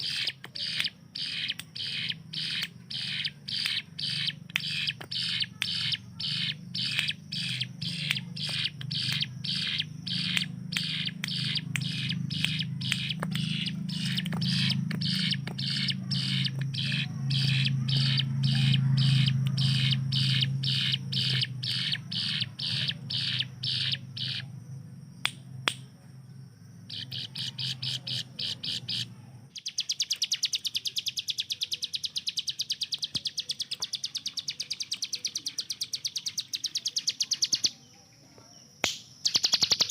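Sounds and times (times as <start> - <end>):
bird singing sharp high notes: 0.0 - 24.5
fast high bird trill: 0.0 - 24.5, 26.9 - 37.7, 39.2 - 39.9.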